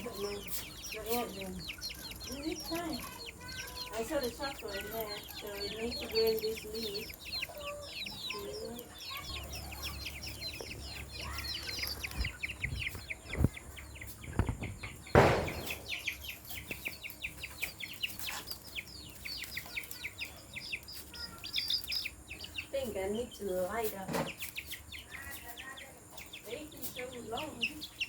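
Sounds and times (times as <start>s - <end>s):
birds chirping: 0.0s - 28.0s
dull knocks: 14.4s - 16.0s
loud sharp knock with rattle: 14.4s - 16.1s.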